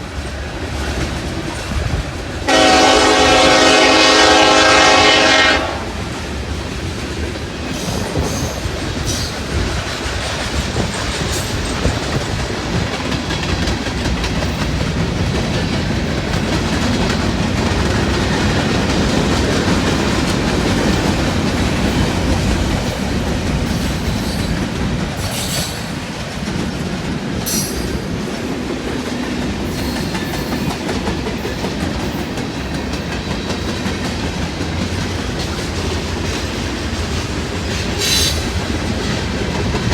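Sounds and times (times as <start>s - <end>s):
train wheels rumbling on track: 0.0s - 39.9s
train horn: 2.4s - 6.1s.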